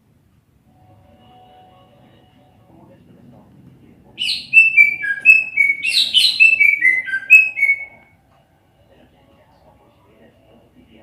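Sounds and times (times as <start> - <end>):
bird singing whistled notes: 4.2 - 8.1.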